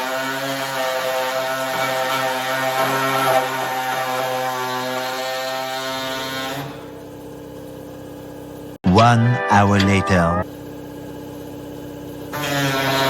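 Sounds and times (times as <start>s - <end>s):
power tool cutting metal: 0.0s - 6.9s, 12.3s - 13.0s.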